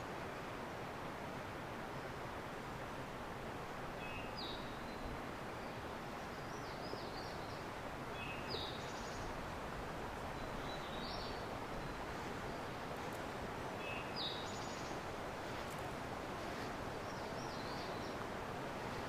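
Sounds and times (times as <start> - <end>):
wind: 0.0 - 19.0
songbird singing: 4.0 - 9.4, 10.2 - 12.8, 13.7 - 15.1, 17.0 - 18.3.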